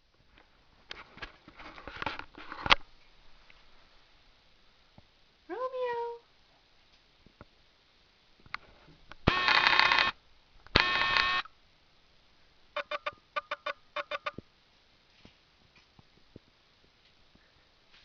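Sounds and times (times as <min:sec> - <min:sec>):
long electronic beeps: 0:09.3 - 0:10.1, 0:10.8 - 0:11.5, 0:12.8 - 0:14.4
short electronic beeps: 0:10.8 - 0:11.5, 0:12.8 - 0:14.4.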